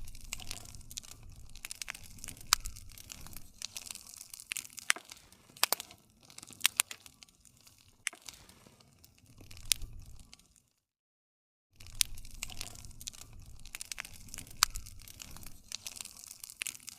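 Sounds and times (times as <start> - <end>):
low rumble: 0.0 - 3.7
wood fire crackling and popping: 0.0 - 10.8, 11.8 - 16.9.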